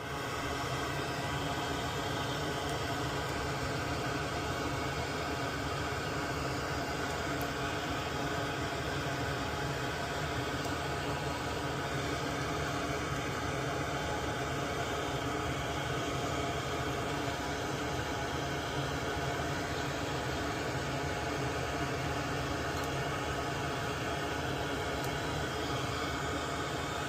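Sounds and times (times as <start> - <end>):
machine hiss with low hum: 0.0 - 27.0.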